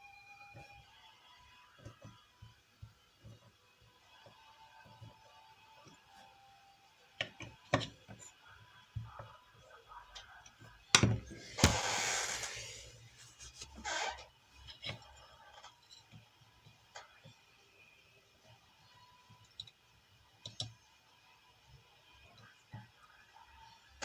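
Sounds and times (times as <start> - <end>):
tools clicking and knocking on workbench: 7.2 - 8.3
scraping on workbench: 11.3 - 14.2.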